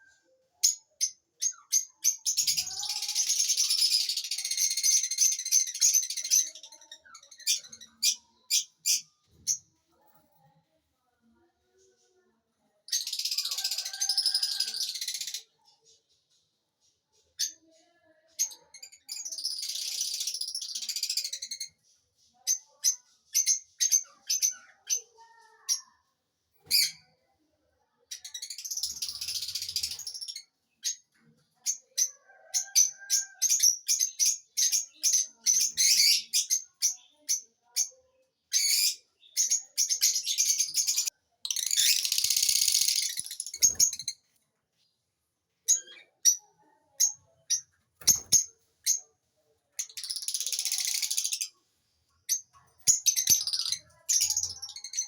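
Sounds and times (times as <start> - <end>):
scratchy bird chatter: 1.6 - 9.7, 12.9 - 26.0, 28.2 - 38.0, 38.6 - 44.4, 49.8 - 55.0
lovebirds chirping: 38.6 - 44.2, 52.2 - 55.0.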